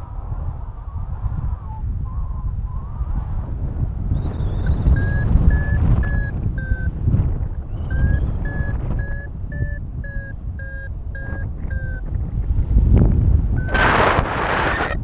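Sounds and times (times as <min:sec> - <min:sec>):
wind buffeting microphone: 0:00.0 - 0:15.0
variometer beeping: 0:04.3 - 0:12.5, 0:13.5 - 0:15.0.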